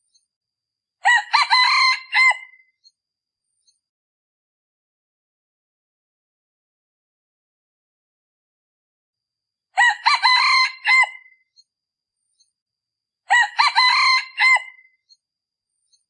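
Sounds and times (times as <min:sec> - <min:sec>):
rooster crowing: 0:01.0 - 0:02.6, 0:09.8 - 0:11.4, 0:13.3 - 0:14.9.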